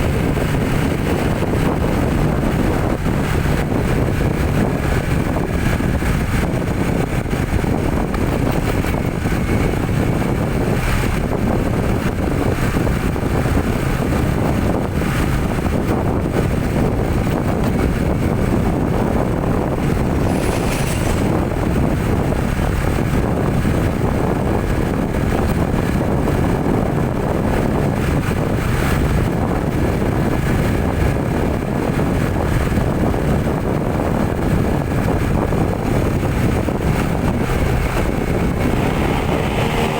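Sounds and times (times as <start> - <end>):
road rumble: 0.0 - 39.9
vehicle engine drone: 0.0 - 39.9.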